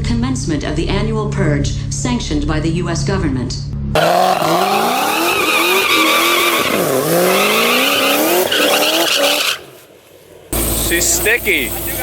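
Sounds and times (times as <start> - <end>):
car engine accelerating: 3.0 - 12.0
tyres squealing: 4.0 - 9.8.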